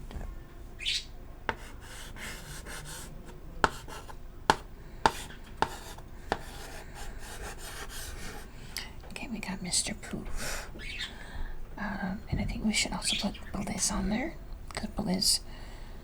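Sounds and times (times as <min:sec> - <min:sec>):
chalk tapping on board: 0:01.5 - 0:08.4
chalk scratching on chalkboard: 0:01.5 - 0:08.5.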